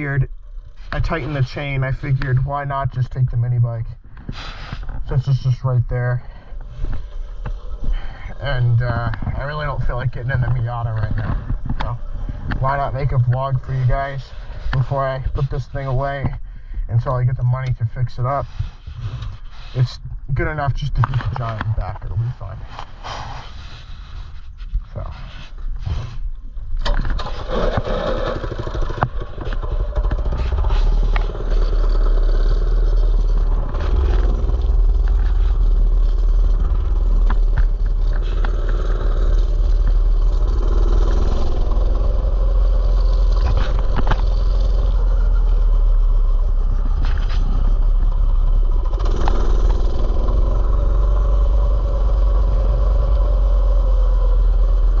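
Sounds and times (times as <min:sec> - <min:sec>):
small bike engine running: 0:27.2 - 0:55.0.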